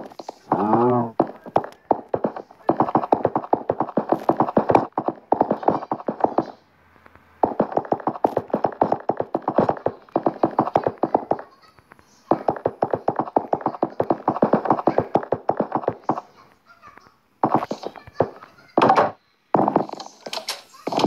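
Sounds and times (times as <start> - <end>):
rapid light taps: 0.0 - 16.3.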